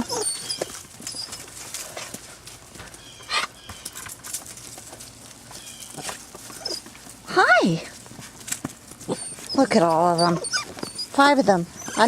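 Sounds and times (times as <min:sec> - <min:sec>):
puppies whimpering: 0:00.0 - 0:01.6, 0:05.6 - 0:06.9, 0:09.0 - 0:12.0.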